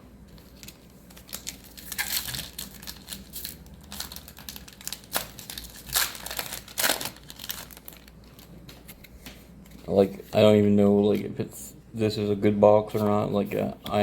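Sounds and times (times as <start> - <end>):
foil wrapper crinkling and tearing: 0.3 - 9.0.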